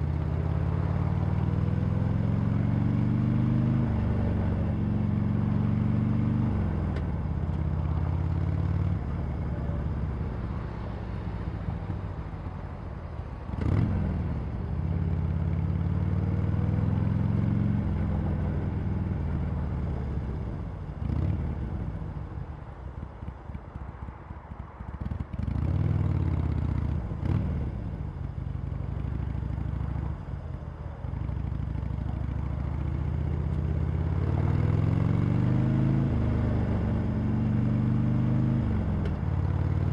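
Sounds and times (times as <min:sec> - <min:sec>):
motorcycle engine accelerating: 0:31.5 - 0:39.9.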